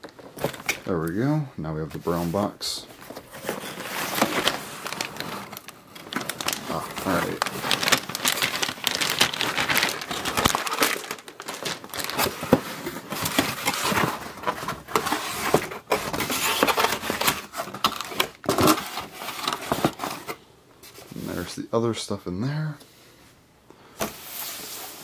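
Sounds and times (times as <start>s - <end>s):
packing crinkling and rustling: 0.0s - 20.4s
cardboard box being opened: 3.1s - 20.4s.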